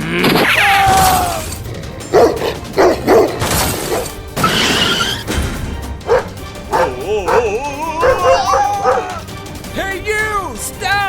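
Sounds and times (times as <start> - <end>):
background music: 0.0 - 11.0
dog barking: 2.1 - 4.1, 6.0 - 9.3
dog whining: 6.0 - 9.3.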